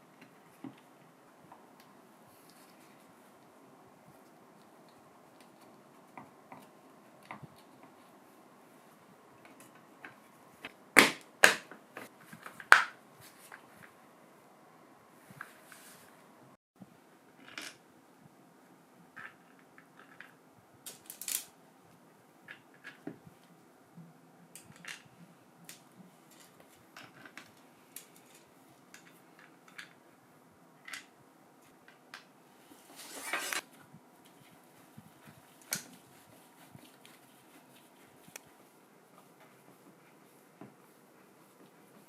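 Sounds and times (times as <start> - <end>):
scraping rustle: 32.7 - 38.7.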